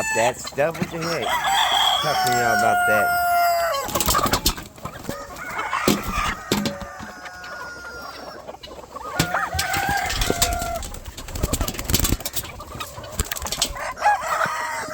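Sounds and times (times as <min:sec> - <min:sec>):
rooster crowing: 0:00.0 - 0:00.4, 0:01.0 - 0:04.1, 0:05.1 - 0:08.4, 0:09.0 - 0:11.0, 0:13.7 - 0:14.9
chickens clucking: 0:00.0 - 0:14.9.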